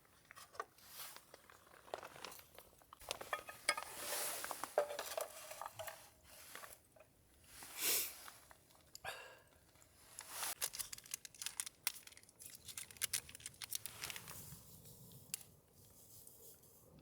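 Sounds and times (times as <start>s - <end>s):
packaging crinkling and tearing: 10.2s - 15.5s.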